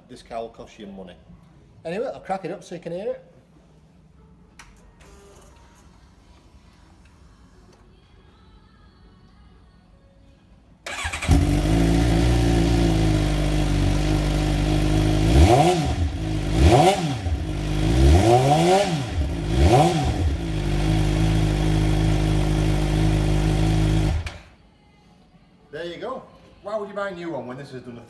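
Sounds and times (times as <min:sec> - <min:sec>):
motorcycle engine idling and revving: 0:10.9 - 0:24.5.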